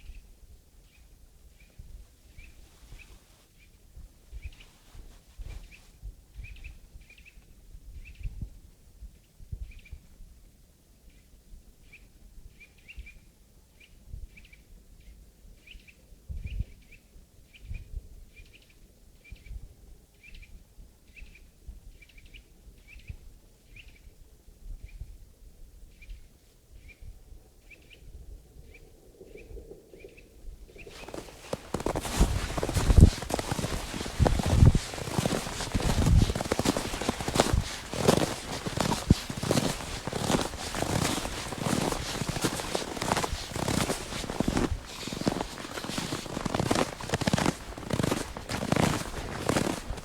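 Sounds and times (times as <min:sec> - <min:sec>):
muffled footsteps in snow: 0:02.3 - 0:06.0, 0:30.8 - 0:50.0.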